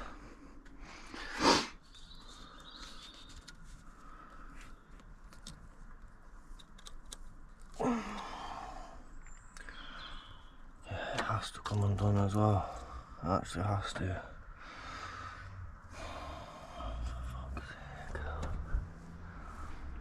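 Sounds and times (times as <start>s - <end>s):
sharp exhale: 1.1s - 1.8s
faint bird chirp: 1.8s - 5.0s, 8.4s - 11.8s
breathy grunt: 7.8s - 9.0s.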